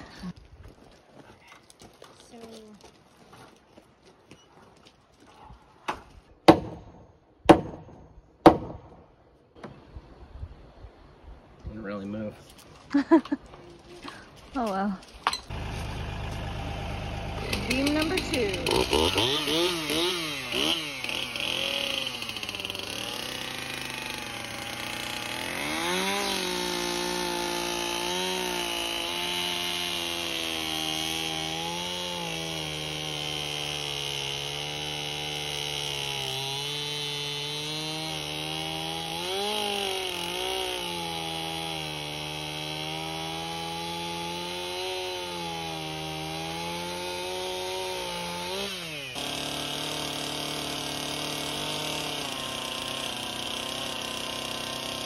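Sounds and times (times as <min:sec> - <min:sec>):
tractor engine revving: 0:15.5 - 0:55.0.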